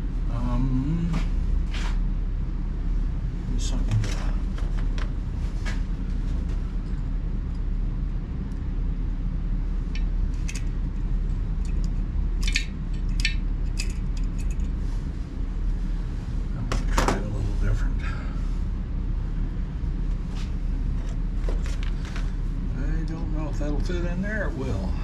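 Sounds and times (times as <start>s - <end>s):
steady low hum: 0.0s - 25.0s
metal hardware clinking: 11.6s - 14.6s.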